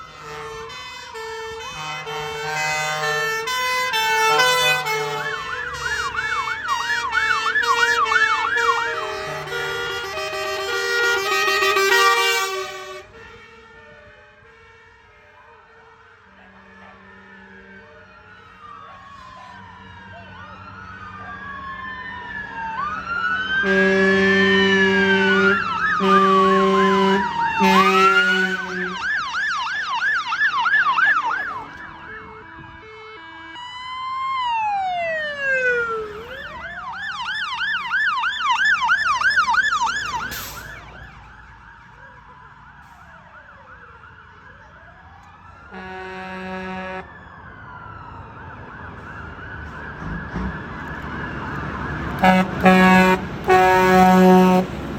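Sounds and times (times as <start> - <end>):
fire engine sirens wailing: 0.0 - 54.9
horn blasts: 0.1 - 5.6, 6.7 - 13.6, 23.6 - 29.1, 45.7 - 47.1, 52.2 - 54.9.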